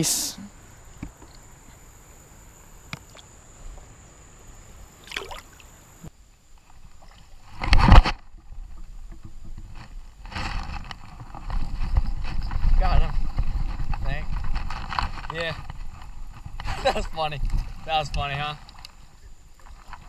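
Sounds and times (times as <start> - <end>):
creek water splashing: 2.9 - 3.8, 4.7 - 6.0
water sloshing: 4.9 - 5.9.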